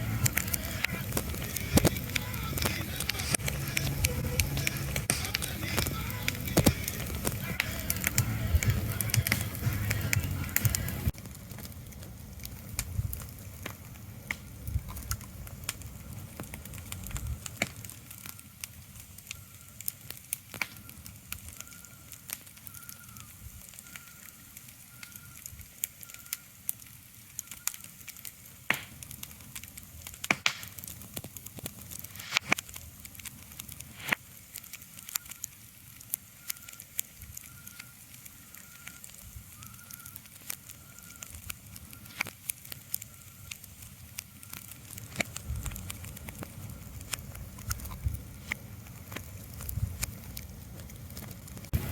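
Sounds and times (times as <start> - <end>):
low rumble: 0.0 - 13.4, 45.4 - 51.9
crackles and clicks over hiss: 0.0 - 51.9.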